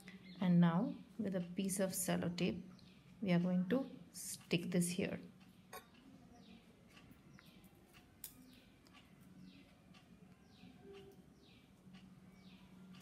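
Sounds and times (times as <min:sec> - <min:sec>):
bird chirping: 0:00.0 - 0:01.0, 0:02.4 - 0:03.2, 0:05.4 - 0:13.0.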